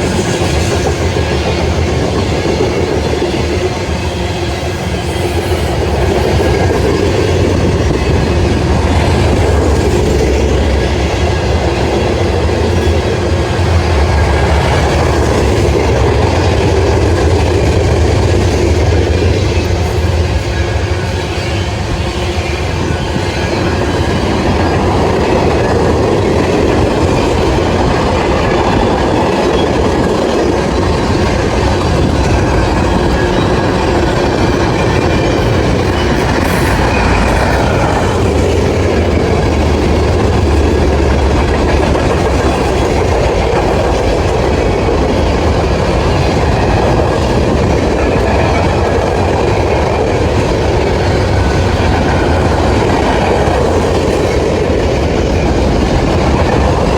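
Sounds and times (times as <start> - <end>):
train wheels clicking over rails: 0.0 - 56.9.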